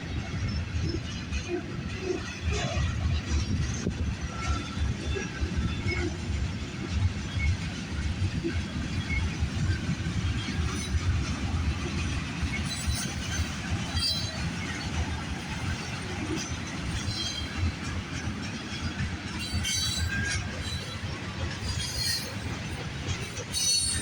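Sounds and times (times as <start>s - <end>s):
freight train rumbling on rails: 0.0s - 24.0s
wheel squeaks: 12.0s - 24.0s.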